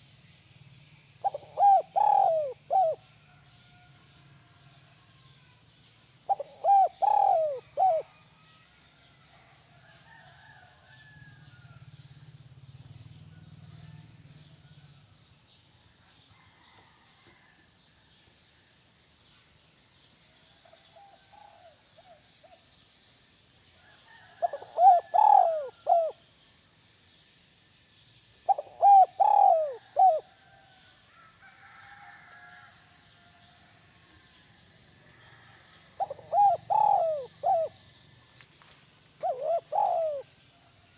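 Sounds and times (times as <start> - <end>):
dove cooing: 1.2 - 3.0, 6.3 - 8.1, 24.2 - 26.2, 28.5 - 30.3, 35.4 - 38.4, 39.2 - 40.4
faint bird chirps: 39.2 - 40.4.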